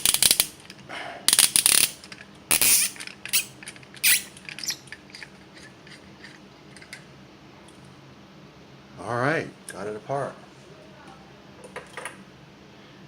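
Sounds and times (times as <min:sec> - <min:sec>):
wrench squeaking and scraping on nut: 0:02.5 - 0:06.4.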